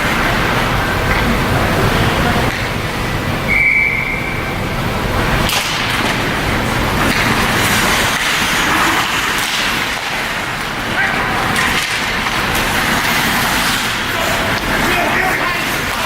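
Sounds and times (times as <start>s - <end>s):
crowd noise in stands: 0.0s - 16.0s
whistle blast: 3.5s - 4.6s
sharp crack: 5.4s - 16.0s.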